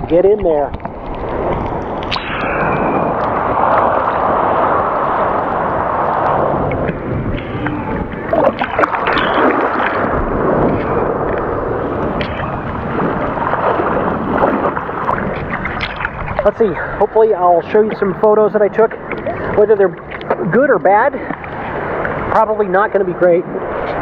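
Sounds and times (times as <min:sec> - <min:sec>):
waves churning in surf: 0:00.0 - 0:24.0.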